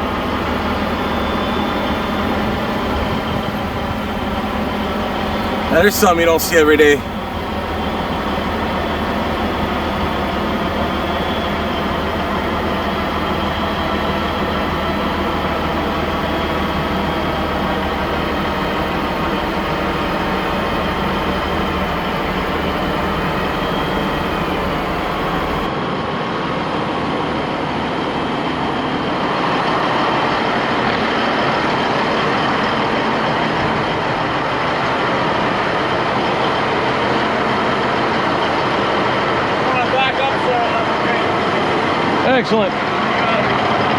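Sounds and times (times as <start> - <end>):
diesel truck engine running: 0.0 - 25.7.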